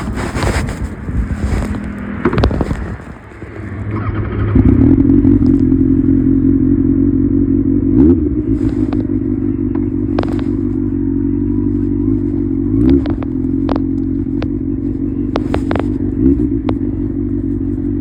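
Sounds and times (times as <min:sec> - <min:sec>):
wind noise: 0:00.0 - 0:05.7
motorcycle engine running: 0:00.0 - 0:18.0.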